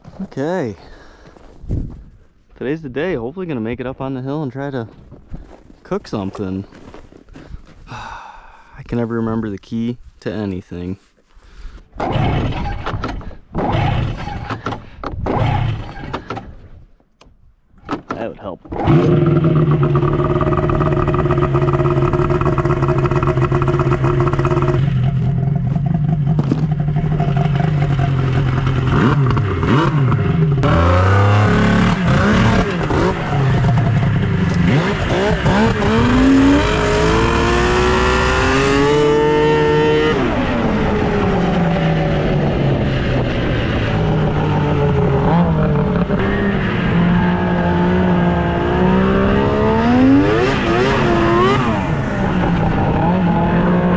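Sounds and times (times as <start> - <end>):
snowmobile engine idling and revving: 12.0 - 16.5, 18.7 - 53.9.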